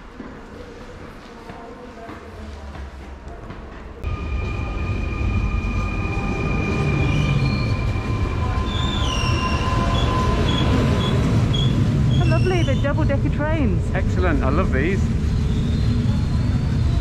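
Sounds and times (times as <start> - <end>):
train wheels rumbling on rails: 3.1 - 17.0
high-pitched wheel squealing: 5.1 - 13.1.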